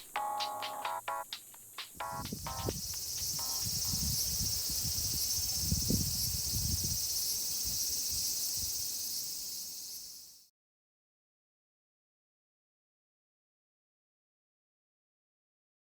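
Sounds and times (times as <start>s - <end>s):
insect chorus: 0.0s - 10.5s.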